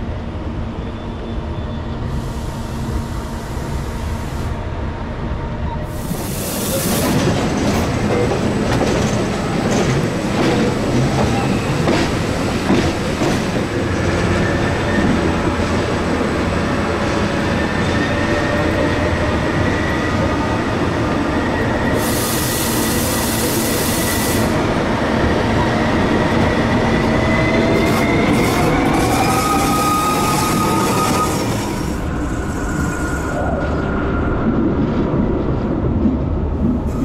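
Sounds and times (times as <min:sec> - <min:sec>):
train rumbling on track: 0:00.0 - 0:37.0
high wheel squeal: 0:27.2 - 0:33.6.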